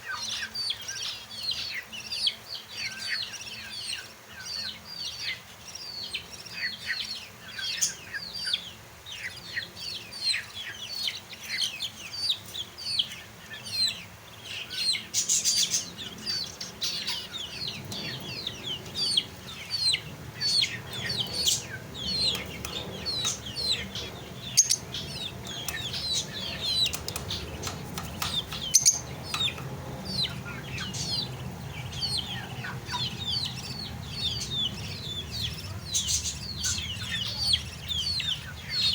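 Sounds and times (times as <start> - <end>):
lovebirds chirping: 0.0 - 38.9
low hum: 16.0 - 38.9.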